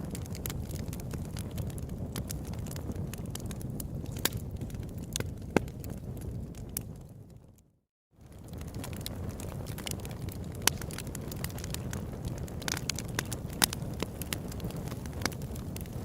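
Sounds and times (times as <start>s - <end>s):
campfire crackling: 0.0s - 7.6s, 8.2s - 16.0s.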